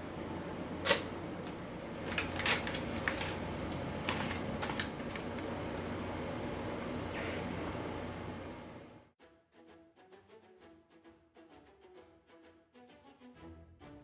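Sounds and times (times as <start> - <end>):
low steady hum: 0.0 - 9.1.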